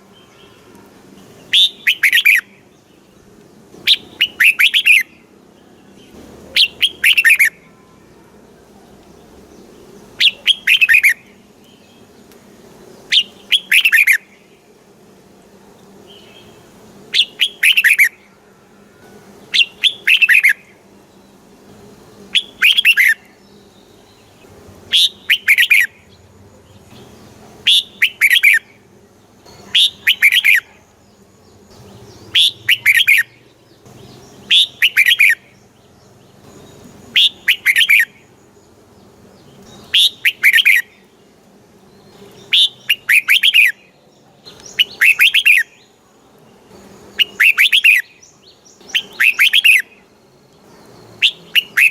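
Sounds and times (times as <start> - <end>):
bulbul singing chirpy phrases: 3.9 - 5.3, 6.1 - 7.7, 9.9 - 11.2, 13.0 - 14.6, 16.2 - 18.2, 24.8 - 31.0, 31.8 - 35.8, 36.4 - 38.4, 39.2 - 41.2, 42.2 - 44.0, 47.1 - 50.2, 51.2 - 51.9.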